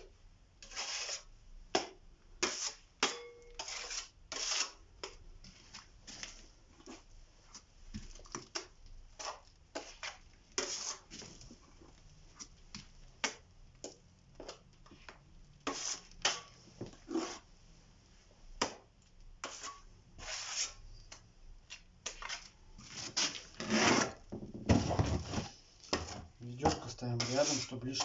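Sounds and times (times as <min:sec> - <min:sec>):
spatula scraping wet plaster: 0:00.6 - 0:01.3, 0:02.4 - 0:02.9, 0:03.6 - 0:05.2, 0:08.3 - 0:11.4, 0:13.3 - 0:16.5, 0:17.1 - 0:17.5, 0:19.4 - 0:20.8, 0:22.1 - 0:24.2, 0:26.0 - 0:28.0.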